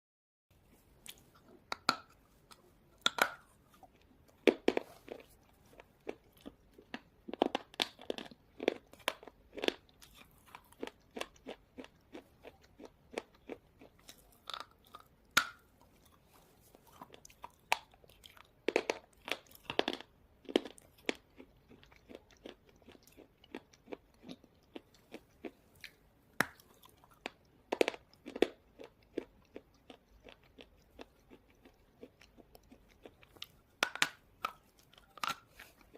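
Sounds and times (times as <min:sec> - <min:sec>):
person chewing brittle crunches: 0:01.0 - 0:35.9.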